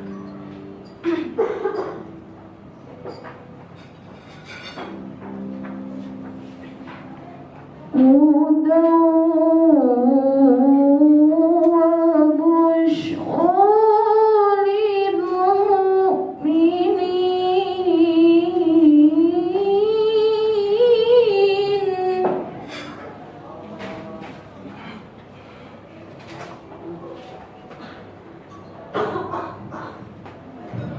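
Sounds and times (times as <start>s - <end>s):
woman chanting: 8.0s - 22.5s.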